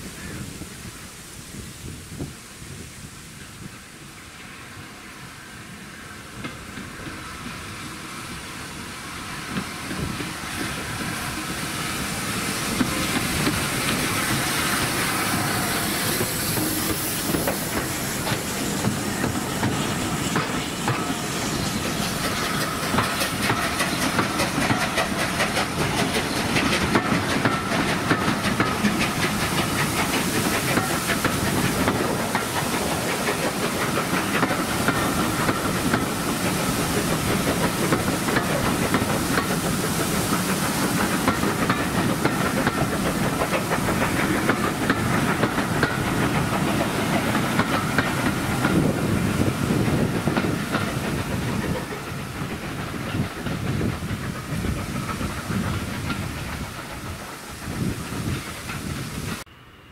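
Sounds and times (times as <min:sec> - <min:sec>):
rushing rumble: 0:06.5 - 0:59.5
wheels clattering over rail joints: 0:21.8 - 0:59.4.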